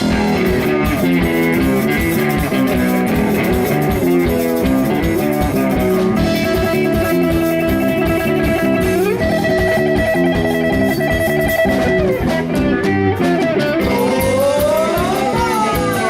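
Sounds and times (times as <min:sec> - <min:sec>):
live rock band playing: 0:00.0 - 0:16.0
long held guitar note: 0:13.4 - 0:16.0.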